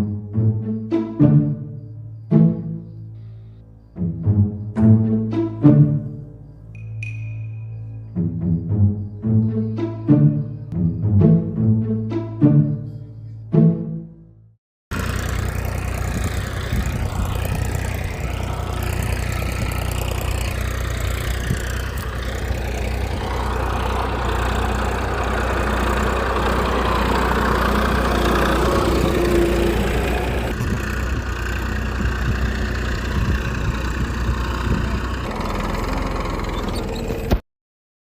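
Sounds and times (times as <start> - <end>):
small motor humming: 14.9 - 37.4.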